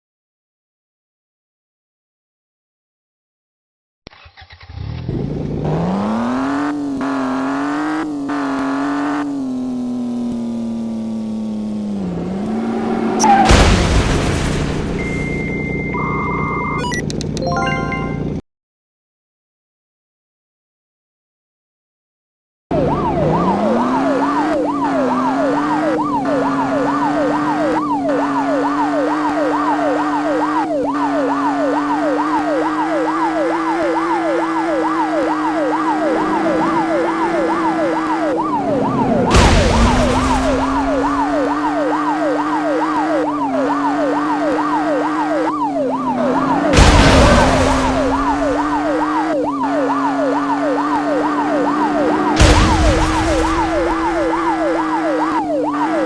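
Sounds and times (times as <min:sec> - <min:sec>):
police siren yelping: 0:05.7 - 0:13.5, 0:15.0 - 0:18.2, 0:22.7 - 0:56.0.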